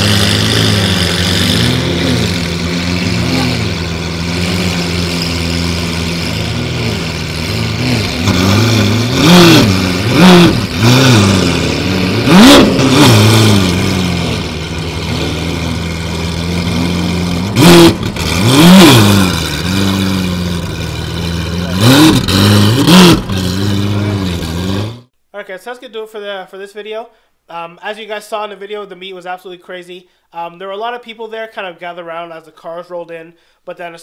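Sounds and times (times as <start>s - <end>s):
car engine idling: 0.0s - 25.0s
engine throttle blips: 0.0s - 25.1s.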